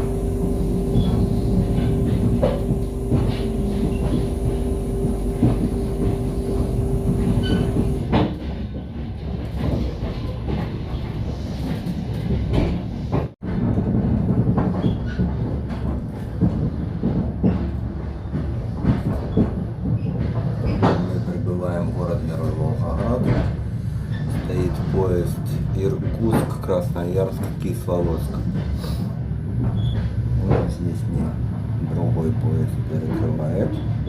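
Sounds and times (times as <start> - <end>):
steady hum: 0.0 - 8.2
train rumbling: 0.0 - 34.0.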